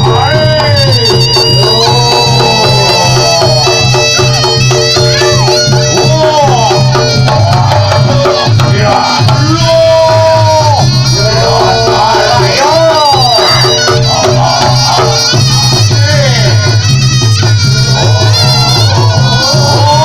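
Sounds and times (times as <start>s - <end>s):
hand drums: 0.0s - 20.0s
reed pipe melody: 0.0s - 20.0s.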